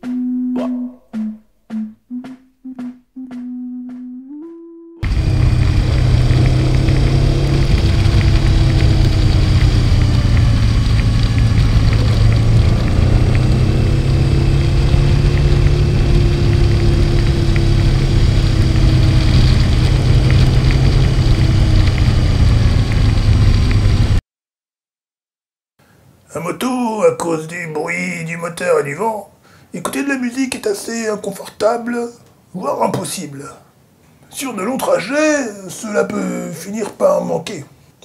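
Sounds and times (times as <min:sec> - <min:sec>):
motorcycle engine cruising: 0:05.0 - 0:24.2.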